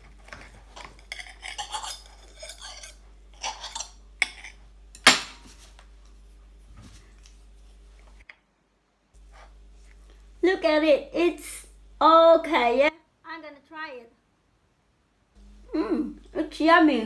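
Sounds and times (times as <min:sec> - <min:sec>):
cutlery scraping and clinking on plate: 0:00.0 - 0:05.7.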